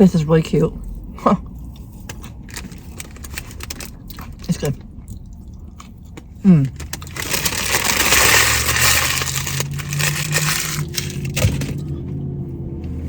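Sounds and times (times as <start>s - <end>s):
food wrapper crinkling: 2.1s - 4.7s, 6.6s - 11.9s.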